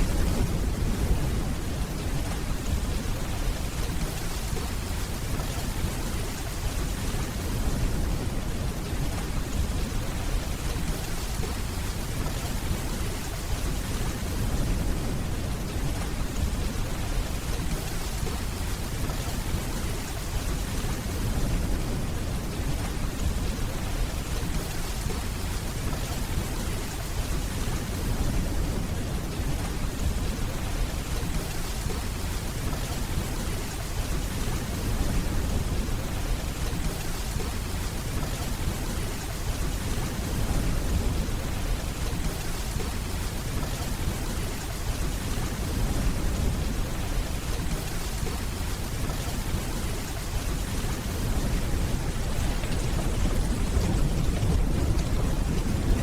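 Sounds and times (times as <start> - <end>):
steady rainfall: 0.0 - 56.0
distant thunder rumbling: 38.2 - 56.0.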